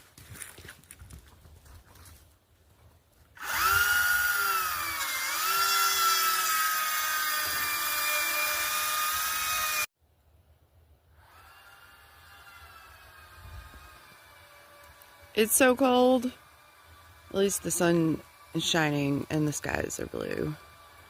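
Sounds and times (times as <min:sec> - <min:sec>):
power tool motor whine: 0:03.4 - 0:09.9, 0:11.1 - 0:21.0.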